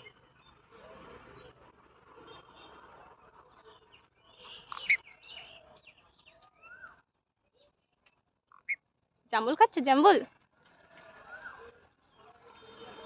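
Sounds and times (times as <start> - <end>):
parrot chirps and calls: 4.6 - 5.6.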